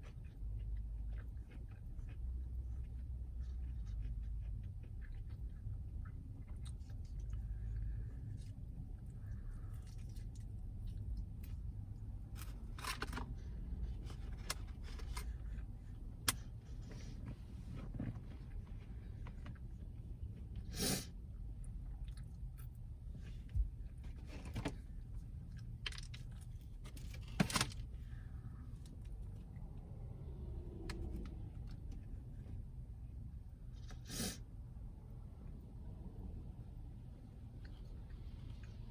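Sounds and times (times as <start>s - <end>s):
person chewing: 0.0s - 17.0s
low steady rumble: 0.0s - 38.9s.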